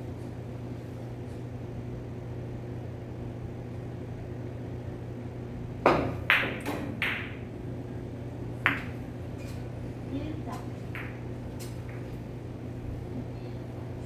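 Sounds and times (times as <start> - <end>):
steady low hum: 0.0 - 14.0
billiard balls clacking: 5.8 - 12.6.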